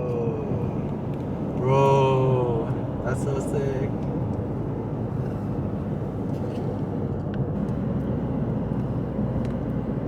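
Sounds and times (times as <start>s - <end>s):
vehicle engine and road rumble: 0.0s - 10.0s.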